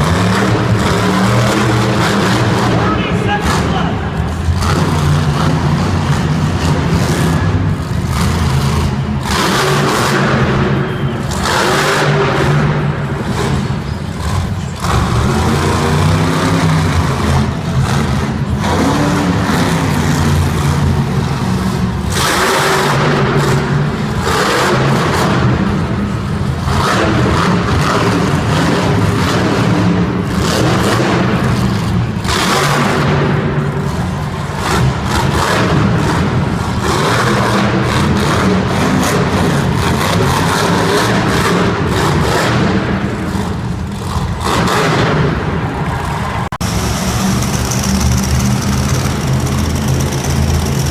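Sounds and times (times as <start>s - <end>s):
monster truck engine revving: 0.0s - 50.9s.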